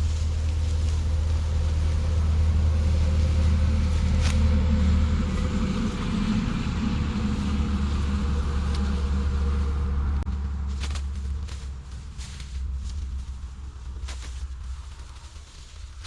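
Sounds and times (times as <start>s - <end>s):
thresher drum droning: 0.0s - 15.3s.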